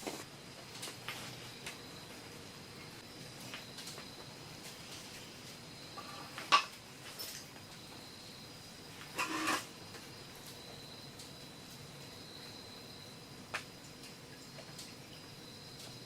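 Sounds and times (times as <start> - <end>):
high-pitched insect drone: 7.8 - 9.7.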